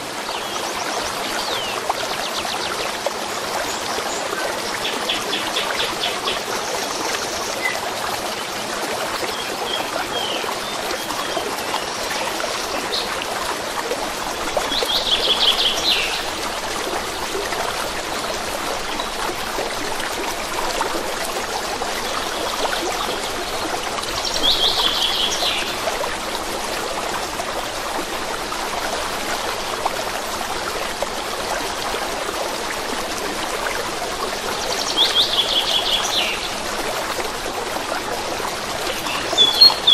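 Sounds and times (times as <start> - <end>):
stream babbling and trickling: 0.0 - 39.9
faint bird chirps: 39.1 - 39.9
small bird singing high notes: 39.4 - 39.9.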